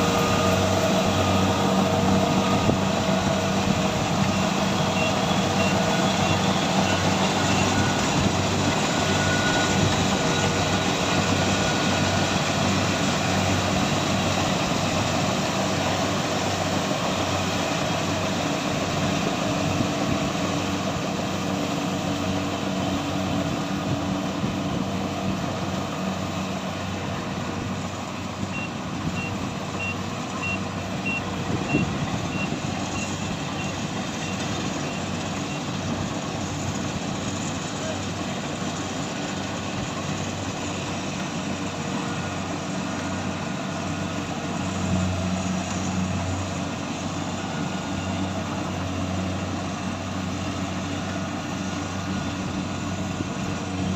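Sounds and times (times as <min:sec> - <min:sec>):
heavy machine engine running: 0:00.0 - 0:53.9
reversing alarm beeping: 0:03.8 - 0:12.6, 0:28.5 - 0:35.8.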